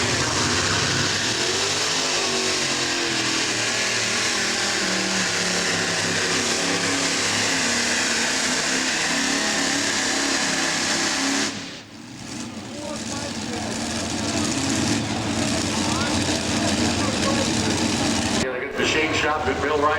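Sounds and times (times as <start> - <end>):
tractor engines howling: 0.0 - 19.9.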